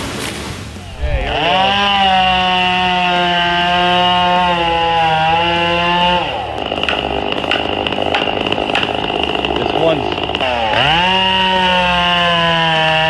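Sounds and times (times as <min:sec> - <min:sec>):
chainsaw at full throttle: 0:00.8 - 0:13.0
sharp cracks: 0:00.8 - 0:13.0.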